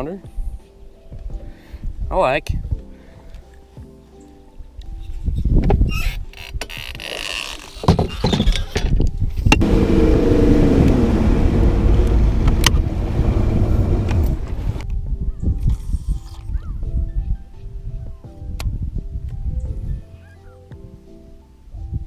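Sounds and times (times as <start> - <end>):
boat motor rumbling: 9.5 - 14.8.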